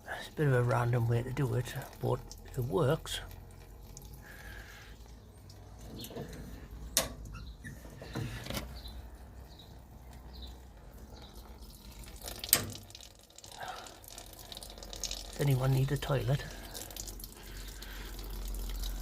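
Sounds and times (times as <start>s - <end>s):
petrol trickling from a hose: 0.0s - 19.0s.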